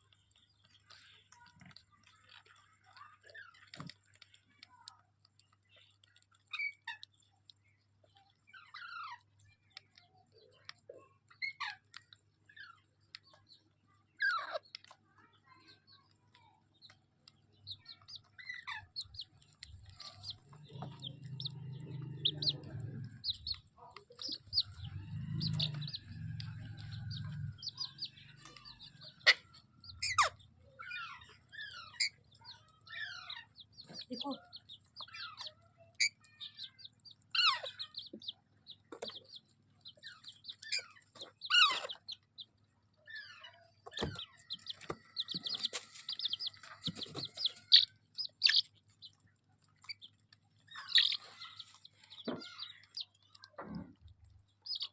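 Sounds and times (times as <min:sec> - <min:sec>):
baby parrot chirping: 0:17.6 - 0:49.2, 0:50.7 - 0:53.2, 0:54.6 - 0:54.9.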